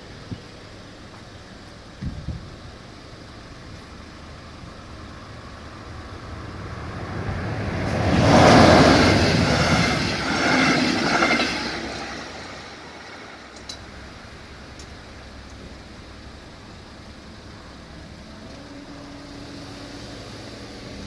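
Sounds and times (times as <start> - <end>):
train wheels rushing on rails: 0.0 - 21.0.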